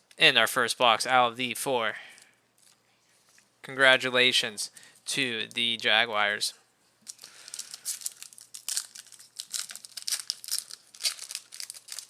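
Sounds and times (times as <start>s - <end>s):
wrapper tearing and crinkling: 7.0s - 12.0s.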